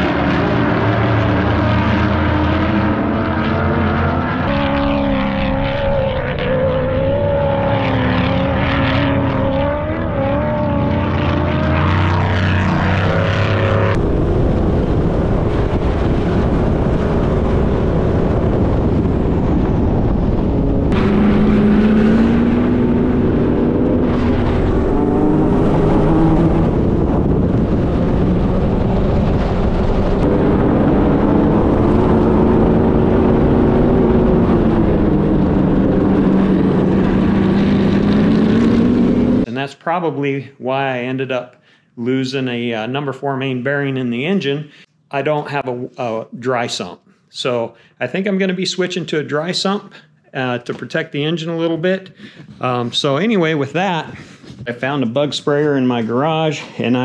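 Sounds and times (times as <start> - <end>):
sand car engine revving: 0.0 - 14.2, 20.8 - 39.5
rushing noise: 0.0 - 39.5.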